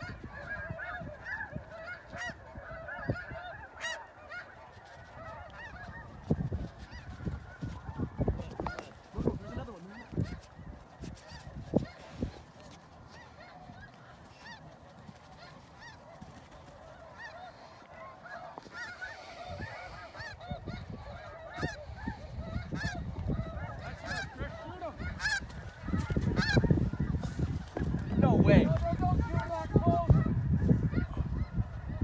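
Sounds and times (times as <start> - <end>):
geese honking: 0.0 - 32.0.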